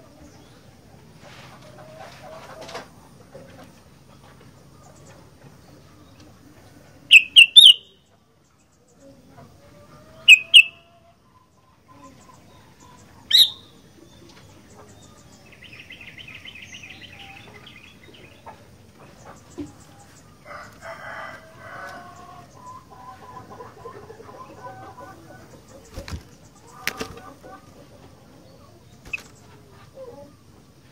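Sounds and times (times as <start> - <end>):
bird chattering: 7.1 - 7.9, 10.2 - 10.8, 13.2 - 13.7
bird whistled notes: 7.1 - 7.9, 10.3 - 10.8, 13.3 - 13.7
faint lower bird calls: 7.1 - 8.1, 10.2 - 20.5.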